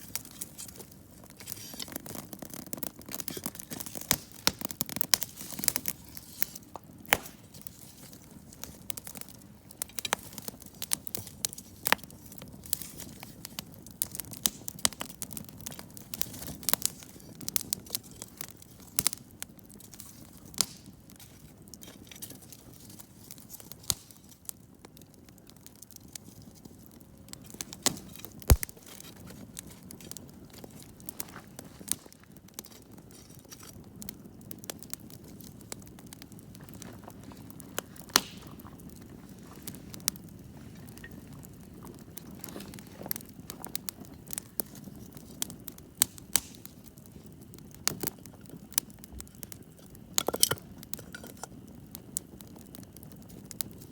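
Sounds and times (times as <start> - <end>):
low rush of burning: 0.0 - 19.2
campfire crackling: 0.0 - 53.9
sharp pops of fire: 0.0 - 53.9.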